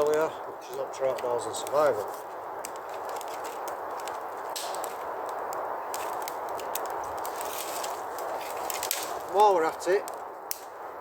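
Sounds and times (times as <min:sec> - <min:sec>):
campfire crackling: 0:00.0 - 0:11.0.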